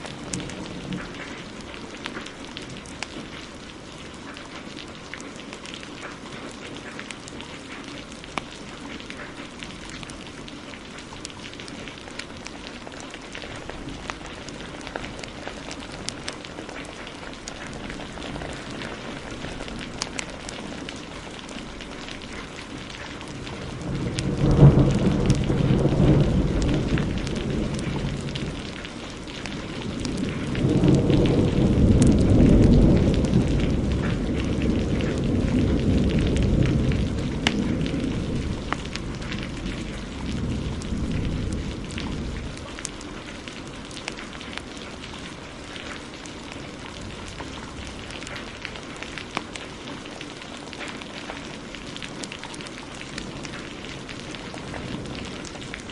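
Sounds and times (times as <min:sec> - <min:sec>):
heavy rain: 0:00.0 - 0:55.9
wood fire crackling: 0:00.0 - 0:55.9
thunder: 0:13.4 - 0:21.4, 0:22.5 - 0:44.6, 0:53.2 - 0:55.9.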